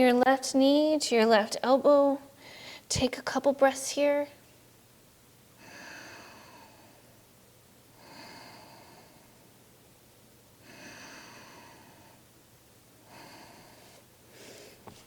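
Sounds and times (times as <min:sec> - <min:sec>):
woman breathing slowly: 0:02.4 - 0:02.9, 0:05.6 - 0:07.3, 0:07.9 - 0:09.6, 0:10.6 - 0:12.4, 0:13.0 - 0:15.0.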